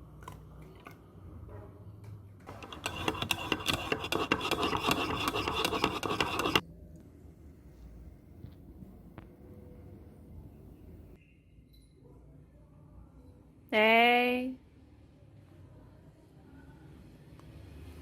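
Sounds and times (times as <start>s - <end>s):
rapid rasping scrape: 2.5s - 6.6s.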